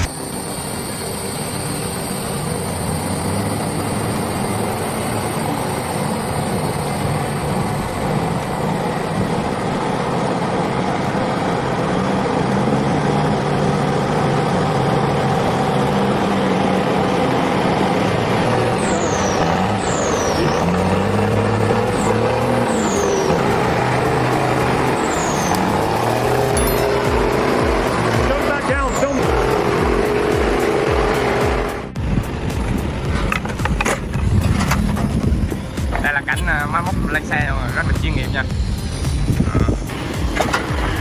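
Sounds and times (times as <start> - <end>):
heavy truck engine running: 0.0 - 41.0
high falling squeaks: 15.5 - 32.0.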